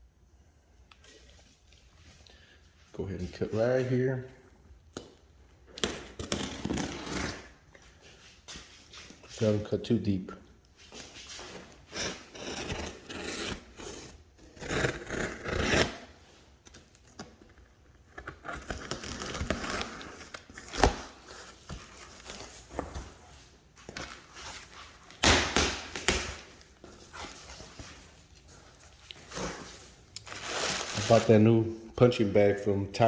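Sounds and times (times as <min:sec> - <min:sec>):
blade cutting cardboard box: 0:05.8 - 0:07.5, 0:11.9 - 0:16.2, 0:18.1 - 0:23.0.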